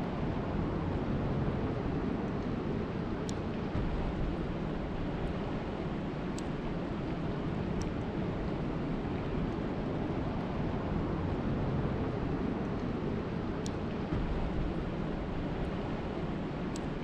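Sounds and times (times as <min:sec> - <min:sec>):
faint ticks: 0:16.7 - 0:17.0.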